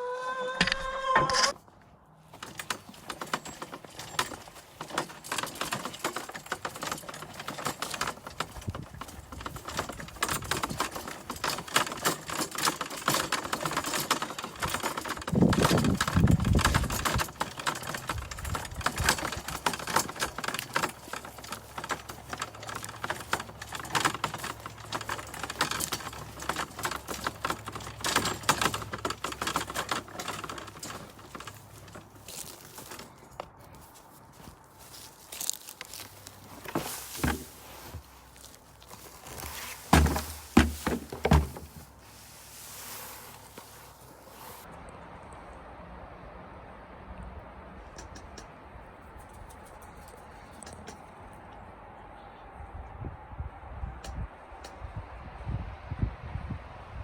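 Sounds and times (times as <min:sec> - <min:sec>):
chickens scratching and pecking in straw: 0:13.4 - 0:44.7.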